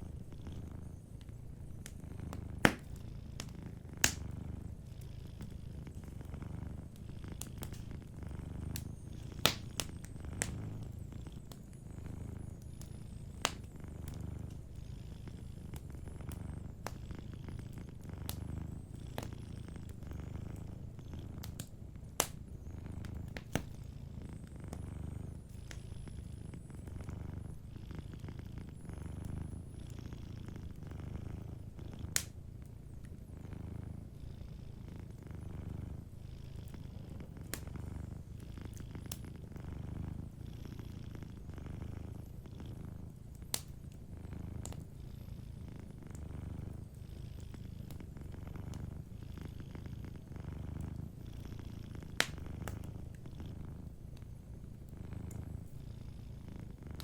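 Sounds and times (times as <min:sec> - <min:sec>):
wood fire popping and crackling: 0:00.0 - 0:25.8, 0:30.3 - 0:33.7, 0:36.7 - 0:40.9, 0:41.8 - 0:44.9, 0:52.0 - 0:55.7
cat purring: 0:00.0 - 0:57.0.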